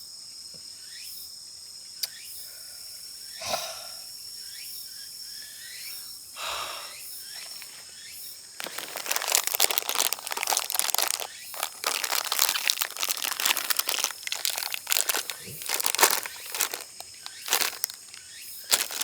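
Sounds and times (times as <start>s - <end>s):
packaging being crinkled: 8.6s - 19.0s.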